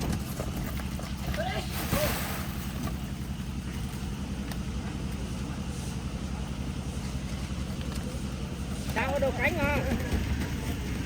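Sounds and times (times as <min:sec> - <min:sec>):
concrete mixer engine throbbing: 0:00.0 - 0:11.0.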